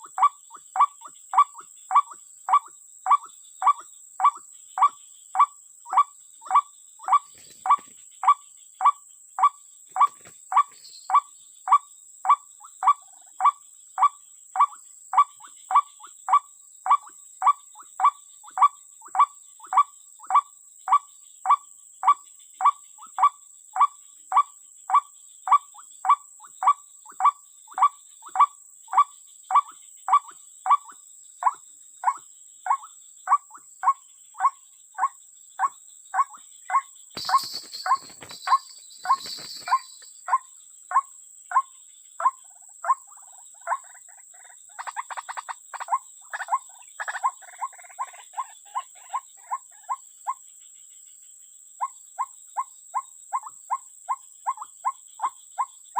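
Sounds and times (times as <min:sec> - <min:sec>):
bird call notes: 0:36.2 - 0:40.4.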